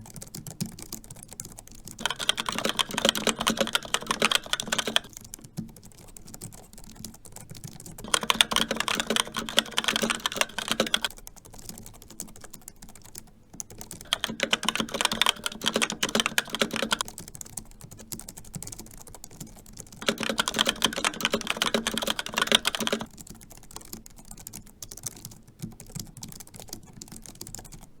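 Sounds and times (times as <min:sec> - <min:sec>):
fast keyboard typing: 0:00.0 - 0:28.0.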